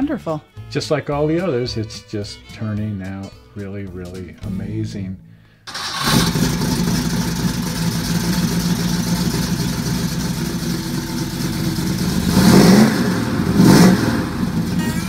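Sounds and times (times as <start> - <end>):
car engine idling and revving: 5.7 - 15.0.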